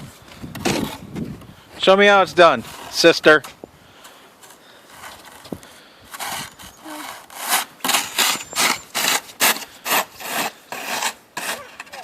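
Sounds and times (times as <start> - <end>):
snow shovel scraping: 0.6 - 1.2, 2.4 - 3.4, 4.0 - 12.0.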